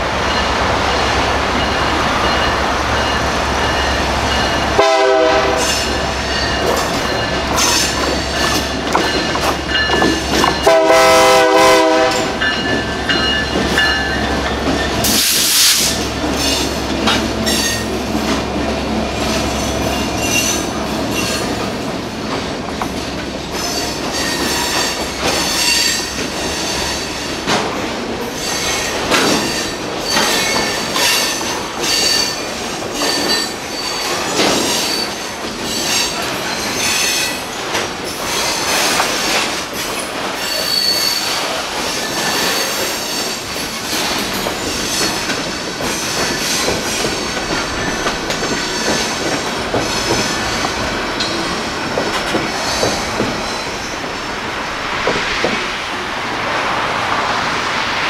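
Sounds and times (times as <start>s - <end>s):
train wheels clicking and squealing: 1.5s - 4.9s, 5.5s - 55.6s
locomotive horn blast: 4.7s - 6.0s, 10.6s - 12.4s.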